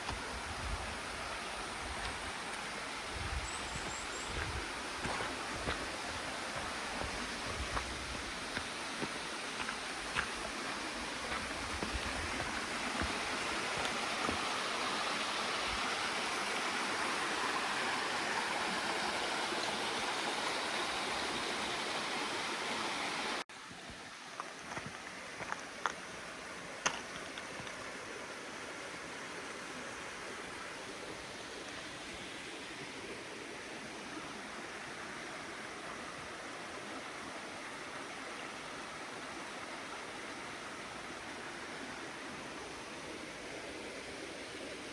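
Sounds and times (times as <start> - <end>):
stream water rushing: 0.0 - 44.9.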